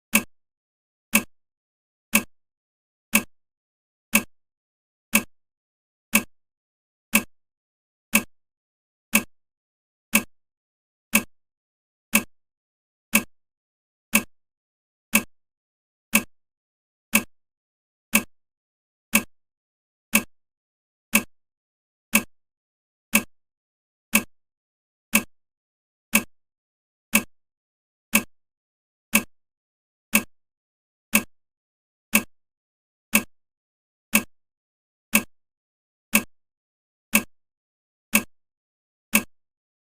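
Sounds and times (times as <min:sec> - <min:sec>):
countdown timer ticking: 0:25.1 - 0:25.3, 0:30.1 - 0:30.3, 0:31.1 - 0:31.3, 0:33.1 - 0:33.3, 0:36.1 - 0:36.3.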